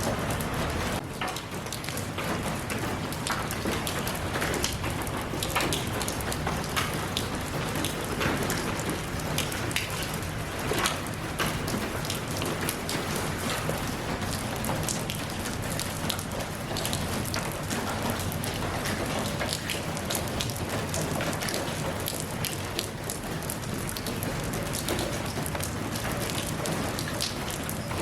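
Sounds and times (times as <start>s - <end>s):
raindrops ticking on hard surface: 0.0s - 28.0s
steady rain falling: 0.0s - 28.0s.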